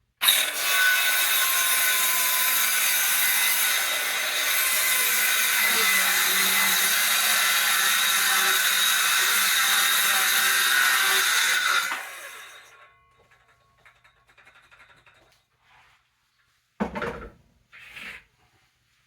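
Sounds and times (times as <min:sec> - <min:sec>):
power saw cutting a board: 0:00.2 - 0:12.9.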